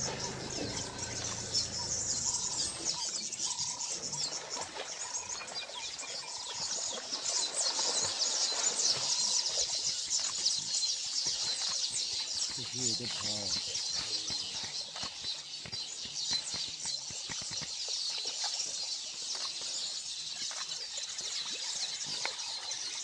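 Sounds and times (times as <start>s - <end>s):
low hum: 0.0s - 3.1s
small birds chirping: 0.0s - 23.0s.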